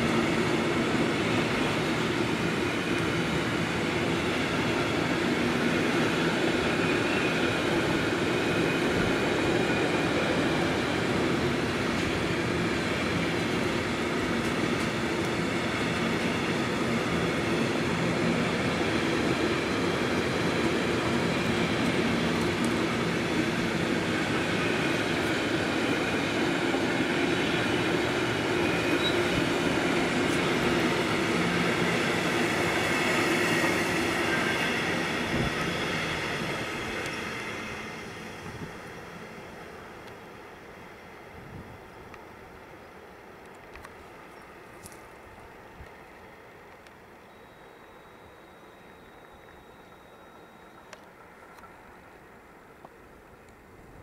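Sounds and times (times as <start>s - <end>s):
freight train wheels rumbling: 0.0s - 54.0s
faint high ringing tones: 47.2s - 52.0s.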